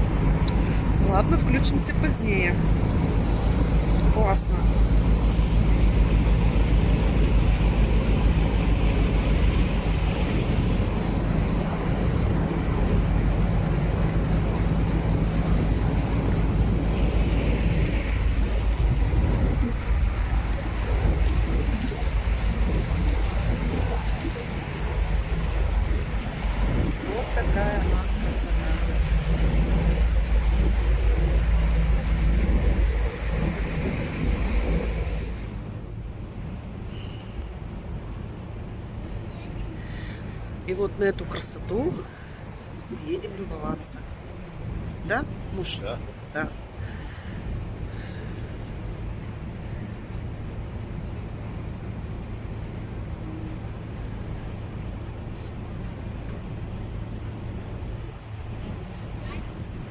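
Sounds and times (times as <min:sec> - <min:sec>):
boat engine rumble: 0:00.0 - 0:59.9
water: 0:00.0 - 0:59.9
wind buffeting microphone: 0:00.0 - 0:59.9.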